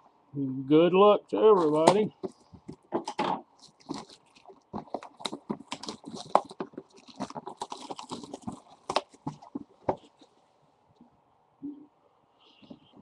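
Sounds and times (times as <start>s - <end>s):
plastic shrink wrap crinkling: 1.6s - 10.5s.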